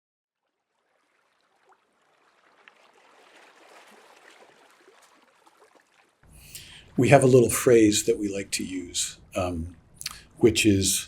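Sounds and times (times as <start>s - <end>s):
water wash with drips: 0.7s - 9.5s.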